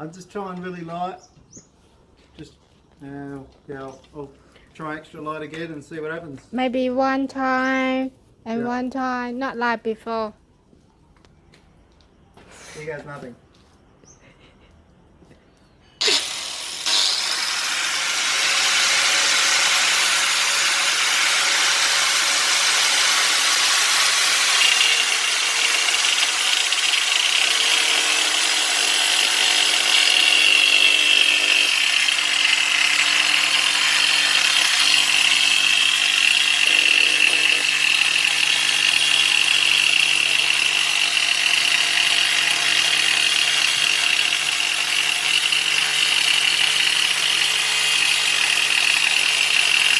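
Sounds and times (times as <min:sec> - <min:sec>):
angle grinder cutting glass: 0:16.0 - 0:49.9.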